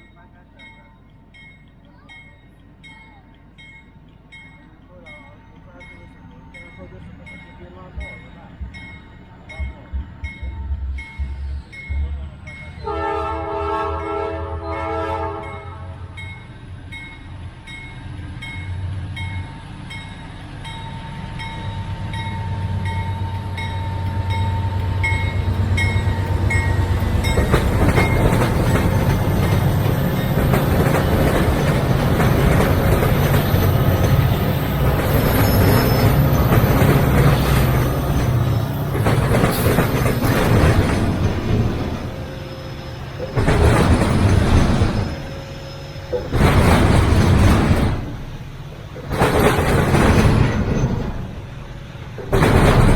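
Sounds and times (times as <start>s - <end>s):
locomotive engine rumble: 0.0s - 52.9s
train wheels rolling: 0.0s - 52.9s
train horn blast: 12.8s - 16.1s.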